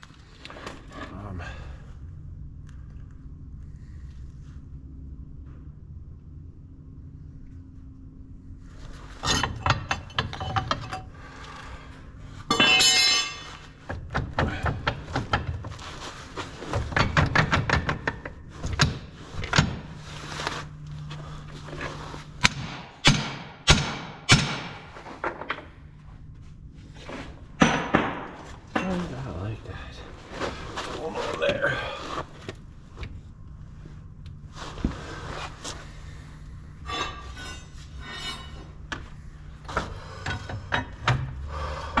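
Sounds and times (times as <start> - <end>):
low steady hum: 0.0 - 42.0
steel chain parts clanking: 9.2 - 11.2, 12.5 - 13.7
hammer-like strikes: 12.5 - 13.6, 22.4 - 24.9.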